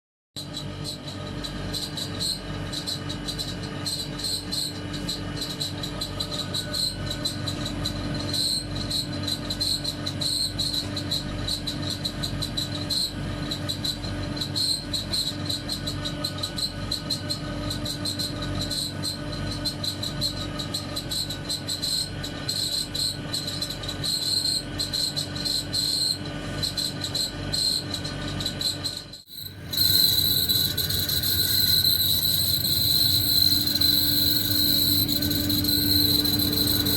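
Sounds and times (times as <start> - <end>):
pulsing high-pitched whistle: 28.6 - 36.9
low hum: 29.3 - 36.9.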